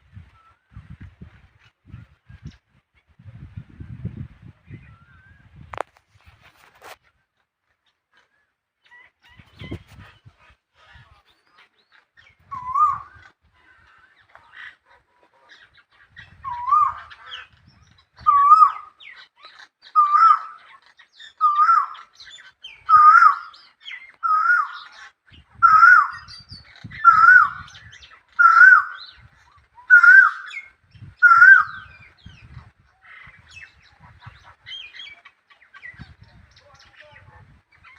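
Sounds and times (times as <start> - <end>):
bird calling: 7.9 - 37.9.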